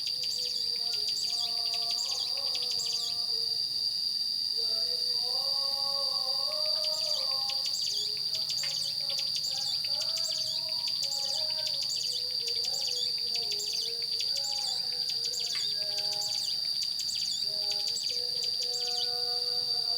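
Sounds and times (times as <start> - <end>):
bird singing high chirps: 0.0 - 3.2, 6.8 - 19.2
high-pitched insect drone: 0.0 - 19.9.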